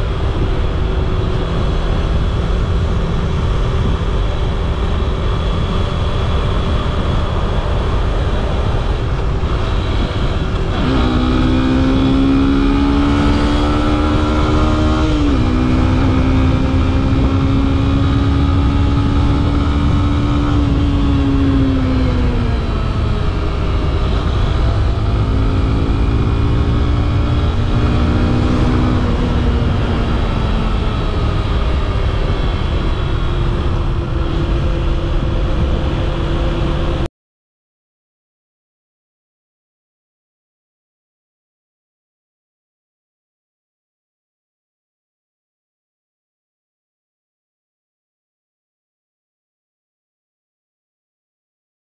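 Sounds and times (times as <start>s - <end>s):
motorcycle engine revving: 0.0s - 37.1s
wind rush on microphone: 0.0s - 37.1s.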